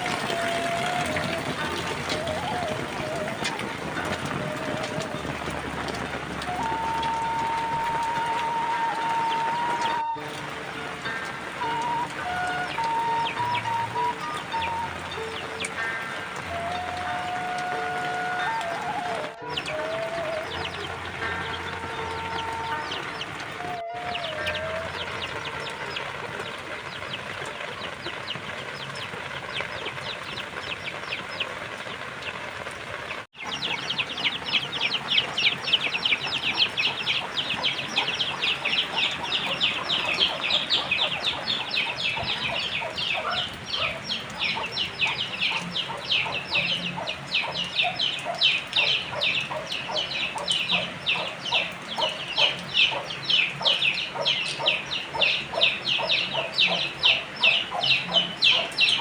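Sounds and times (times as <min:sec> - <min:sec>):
chickens clucking: 0:33.4 - 0:59.0.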